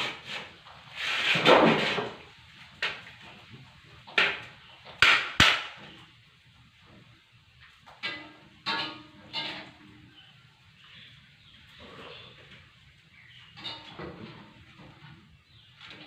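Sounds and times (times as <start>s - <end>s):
knocks and clanks on metal: 4.0s - 6.0s, 7.8s - 9.8s, 13.6s - 15.2s.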